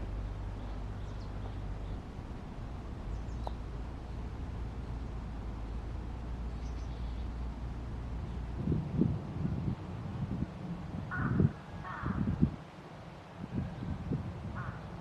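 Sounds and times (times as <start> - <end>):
low rumble: 0.0 - 11.0
faint bird chirps: 6.5 - 7.4.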